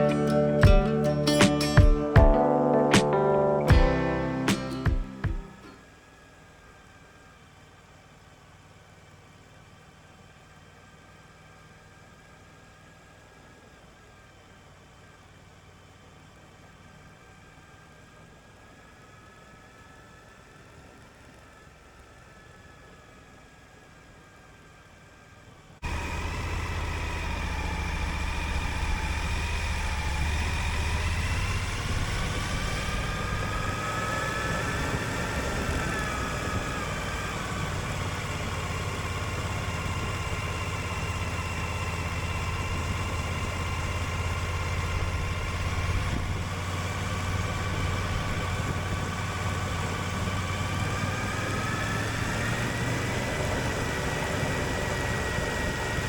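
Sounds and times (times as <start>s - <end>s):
motorcycle engine running: 0.0s - 5.8s, 25.8s - 56.0s.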